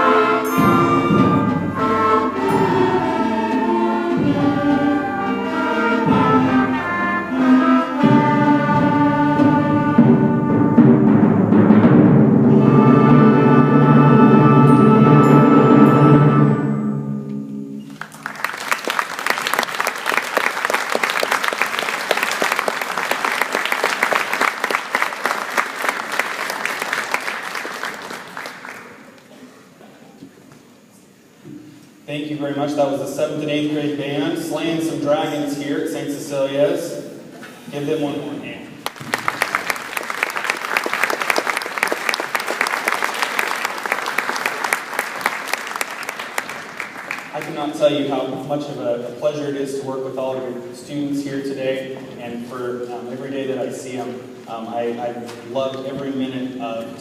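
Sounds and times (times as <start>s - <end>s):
wind band chord: 0.0s - 18.0s
audience applause: 17.9s - 29.2s, 38.8s - 47.8s.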